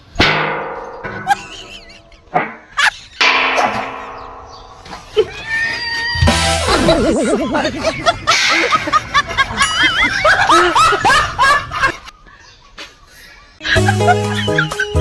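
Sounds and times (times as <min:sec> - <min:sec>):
high-pitched laughter: 0:05.2 - 0:12.1.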